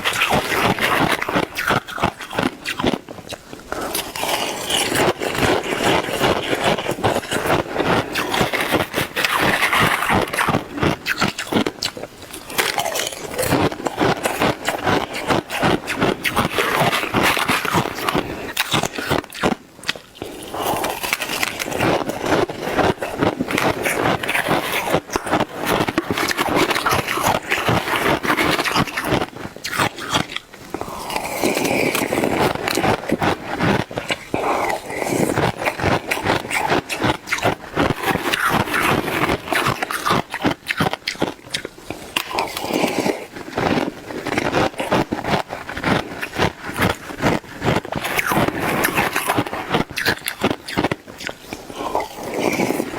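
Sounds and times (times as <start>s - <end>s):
ice being chewed: 0.0s - 52.9s.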